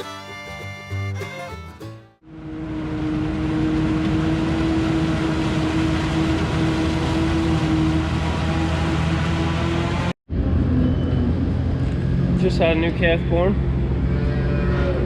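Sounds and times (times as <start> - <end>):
heavy machinery engine running: 2.2 - 14.2.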